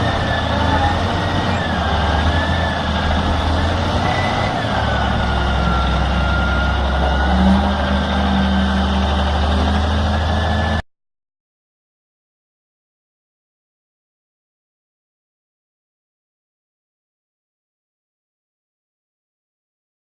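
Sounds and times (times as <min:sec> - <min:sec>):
heavy vehicle engine running: 0:00.0 - 0:10.8.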